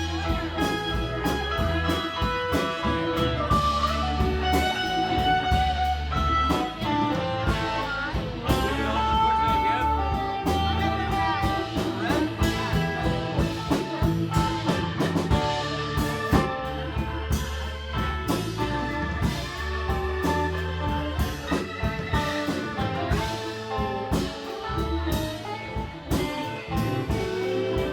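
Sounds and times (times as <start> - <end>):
lead guitar bending notes: 0.0 - 27.9
live rock band playing: 0.0 - 27.9.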